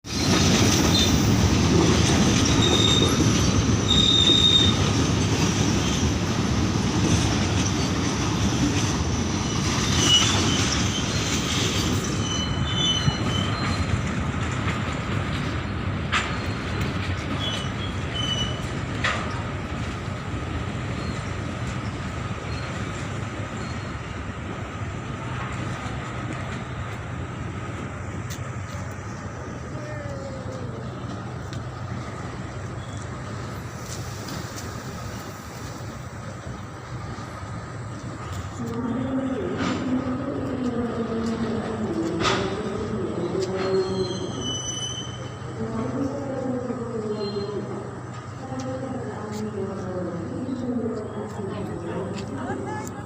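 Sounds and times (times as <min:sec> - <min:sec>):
train wheels rumbling on rails: 0:00.0 - 0:53.0
high-pitched wheel squeals: 0:03.9 - 0:04.8, 0:09.5 - 0:13.9, 0:43.6 - 0:45.4.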